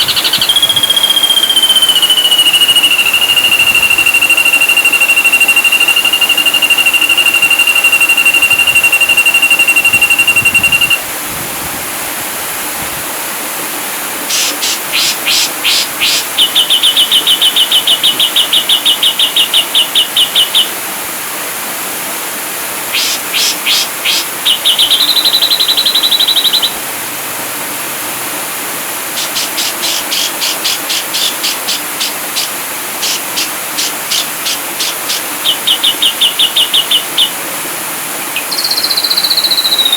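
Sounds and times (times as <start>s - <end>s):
bird song whistles and trills: 0.0s - 11.0s, 14.3s - 20.8s, 22.9s - 26.8s, 29.2s - 37.4s, 38.4s - 39.9s
steady hiss: 0.0s - 39.9s.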